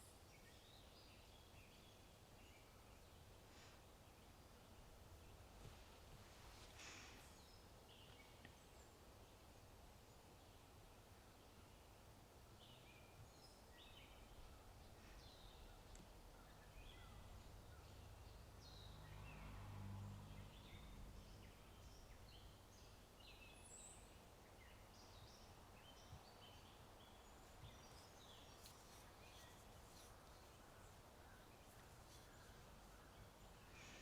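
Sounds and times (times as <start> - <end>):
birds chirping: 12.7 - 34.0.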